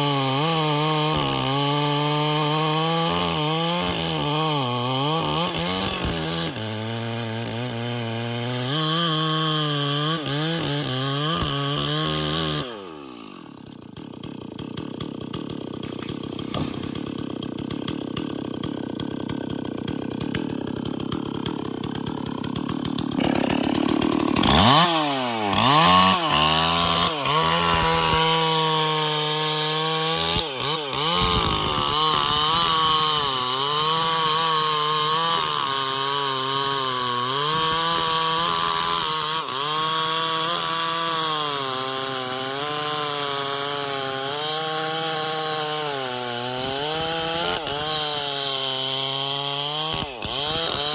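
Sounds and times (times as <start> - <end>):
chainsaw cutting wood: 0.0 - 50.9
chainsaw idling: 0.0 - 50.9.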